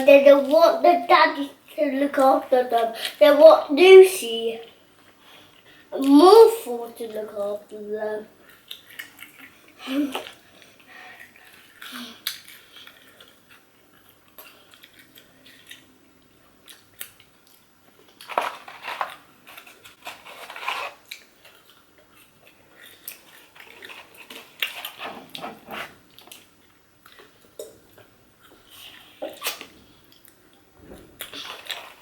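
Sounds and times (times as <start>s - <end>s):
small clicks and crackles: 16.6s - 25.4s.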